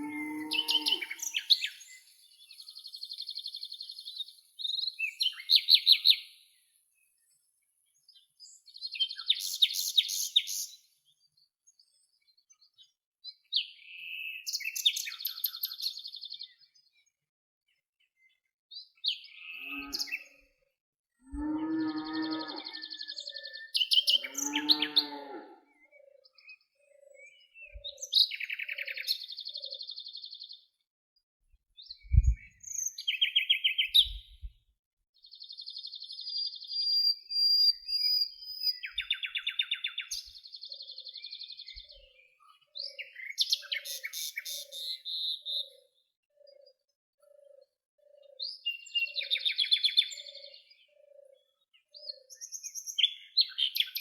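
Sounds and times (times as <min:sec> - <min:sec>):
harsh low bird calls: 0:00.0 - 0:01.8, 0:32.0 - 0:32.6
songbirds trilling and chirping: 0:00.0 - 0:30.9, 0:31.7 - 0:54.0
soft low bird notes: 0:32.0 - 0:32.6
low thump: 0:32.1 - 0:32.5.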